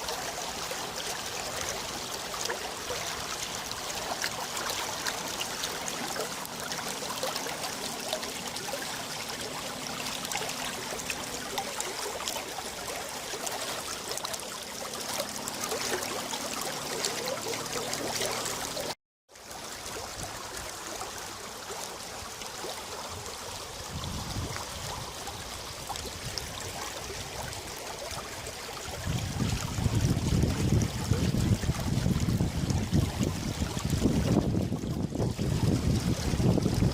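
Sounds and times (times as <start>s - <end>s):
water rushing and trickling: 0.0s - 36.9s
wind buffeting microphone: 23.1s - 26.6s, 28.9s - 36.9s.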